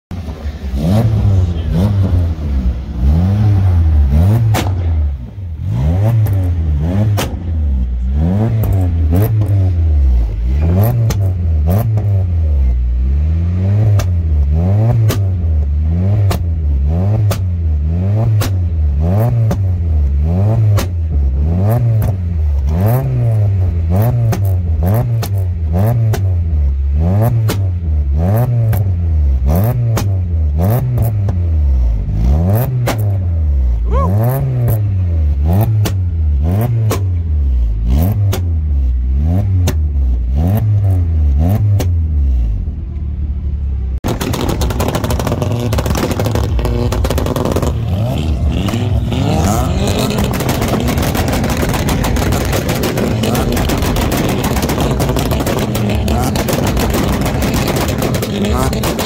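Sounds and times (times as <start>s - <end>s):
car engines revving: 0.1s - 59.0s
exhaust pops and bangs: 4.4s - 5.4s, 7.0s - 7.6s, 10.9s - 12.1s, 13.9s - 16.6s, 17.2s - 19.8s, 20.6s - 21.3s, 24.1s - 26.4s, 27.3s - 27.8s, 29.9s - 30.4s, 32.8s - 33.2s, 35.6s - 37.3s, 44.0s - 59.0s.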